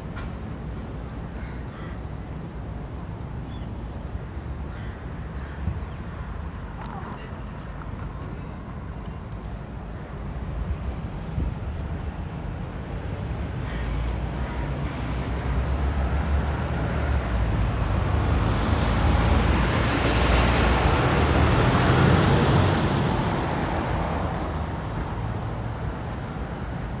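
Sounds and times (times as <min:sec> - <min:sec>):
vehicle passing on wet road: 0:13.8 - 0:24.9.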